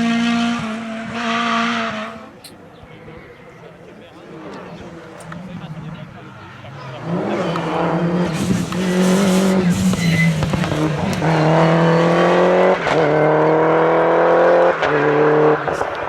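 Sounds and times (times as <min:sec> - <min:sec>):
rally car engine revving high: 0:00.0 - 0:02.4, 0:04.2 - 0:16.0.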